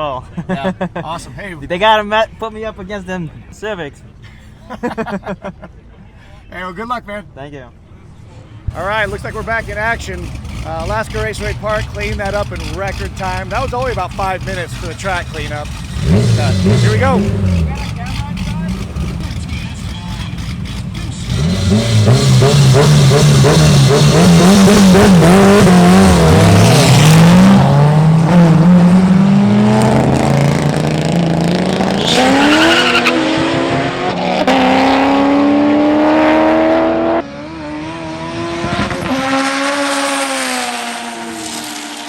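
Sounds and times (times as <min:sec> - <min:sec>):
car engines accelerating: 0:08.0 - 0:42.0.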